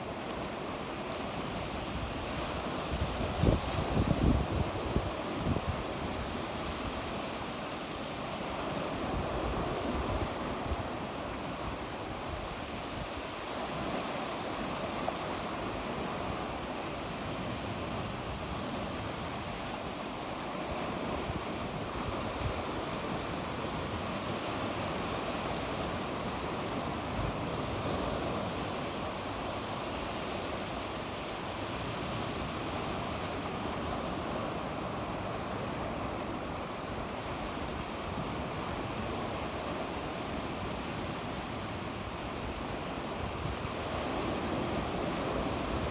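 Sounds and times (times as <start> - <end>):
sea waves breaking on shore: 0.0 - 45.9
wind on microphone: 1.8 - 7.2.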